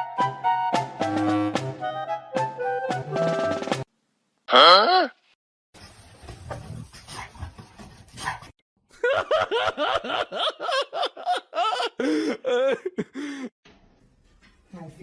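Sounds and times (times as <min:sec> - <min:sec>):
person laughing hard: 0:08.9 - 0:13.5.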